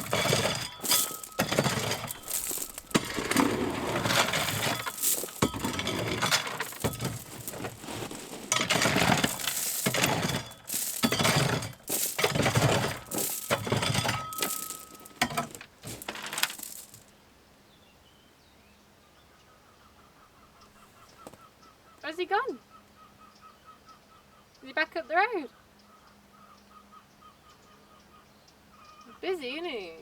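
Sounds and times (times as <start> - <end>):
rocks and gravel clattering: 0.0 - 17.1
faint background noise: 0.0 - 30.0.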